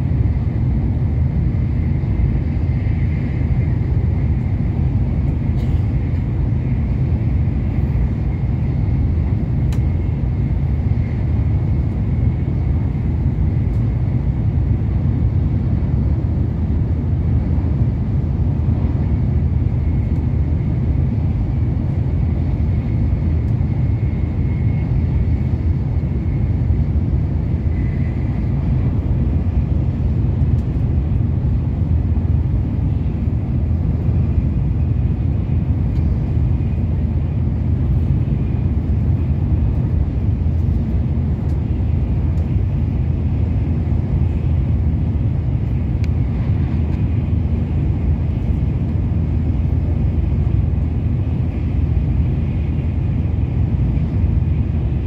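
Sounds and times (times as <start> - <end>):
train cabin low rumble: 0.0 - 55.0.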